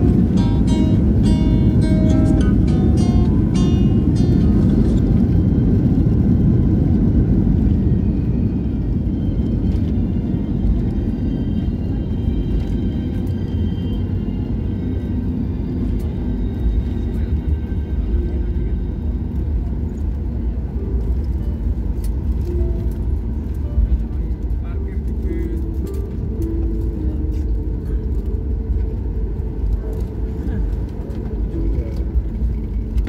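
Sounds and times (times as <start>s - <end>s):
vehicle rumble from inside cabin: 0.0s - 33.0s.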